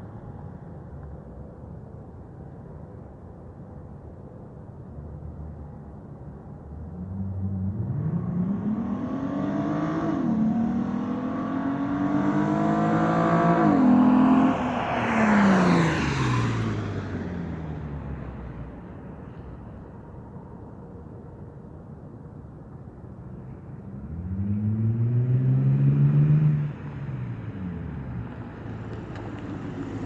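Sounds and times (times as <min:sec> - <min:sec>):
car accelerating past: 0:07.0 - 0:18.7, 0:23.8 - 0:30.0.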